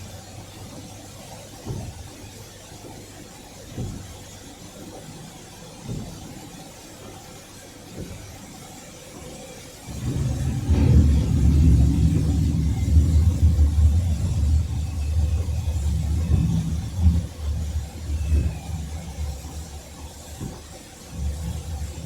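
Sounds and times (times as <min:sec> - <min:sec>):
loud low uneven rumble: 0:09.8 - 0:22.0.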